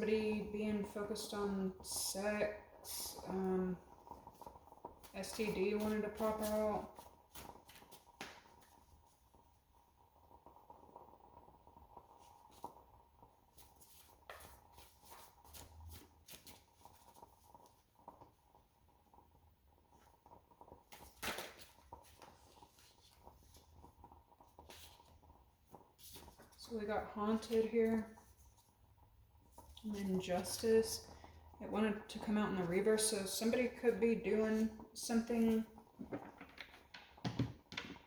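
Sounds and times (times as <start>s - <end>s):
tarot cards rustling and clicking: 20.9s - 23.6s.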